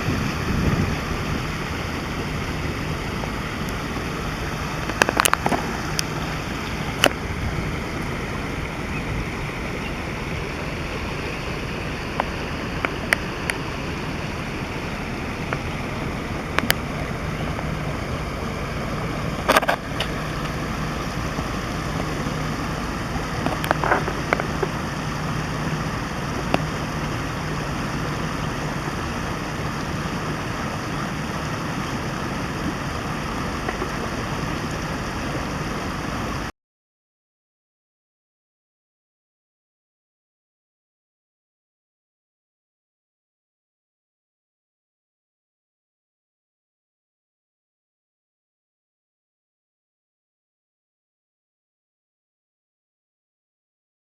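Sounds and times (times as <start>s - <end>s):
stream babbling: 0.0s - 36.5s.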